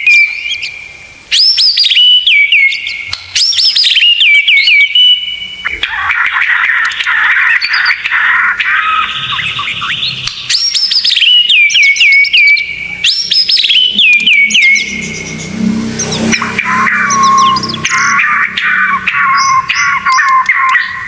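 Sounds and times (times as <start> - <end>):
songbird warbling: 0.0 - 21.0
sharp whistled notes: 9.3 - 21.0
low rumble: 12.9 - 19.7.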